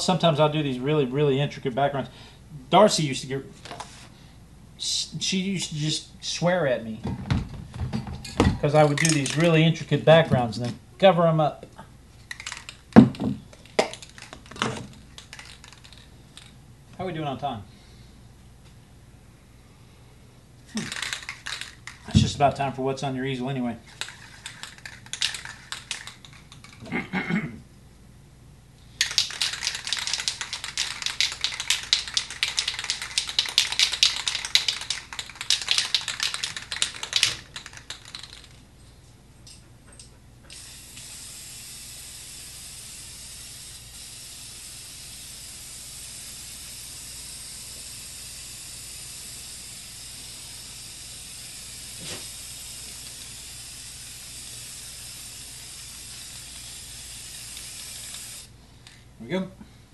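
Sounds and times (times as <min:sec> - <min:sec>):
spray can ball rattling: 0:08.6 - 0:09.8, 0:12.2 - 0:16.6, 0:20.7 - 0:22.7, 0:23.8 - 0:26.8, 0:29.0 - 0:38.7, 0:40.5 - 0:58.5
spray paint hissing: 0:13.6 - 0:16.1, 0:20.7 - 0:22.2, 0:23.9 - 0:26.8, 0:29.0 - 0:38.6, 0:40.5 - 0:58.5.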